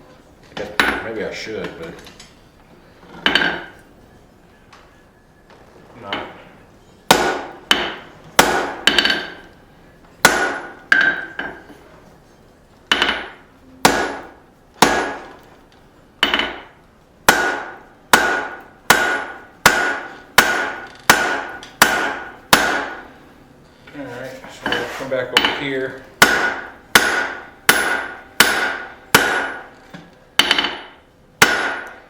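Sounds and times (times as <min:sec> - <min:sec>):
hammer striking steel on anvil: 0:07.0 - 0:09.4, 0:10.2 - 0:11.8, 0:12.9 - 0:15.3, 0:16.2 - 0:23.1, 0:24.7 - 0:29.7, 0:30.4 - 0:32.0.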